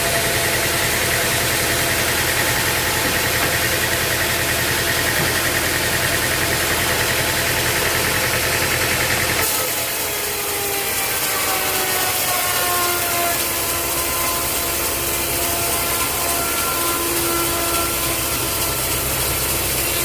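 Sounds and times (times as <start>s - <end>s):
saw whining: 0.0s - 20.0s
sawmill machinery engine drone: 0.0s - 20.0s.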